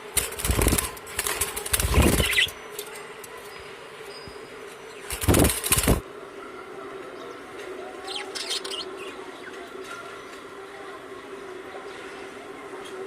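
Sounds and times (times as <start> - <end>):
bird wings fluttering: 0.0 - 2.9, 5.1 - 6.0.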